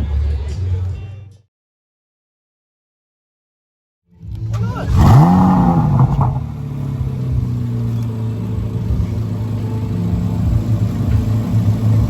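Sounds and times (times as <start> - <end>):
car engine droning: 4.1 - 12.0.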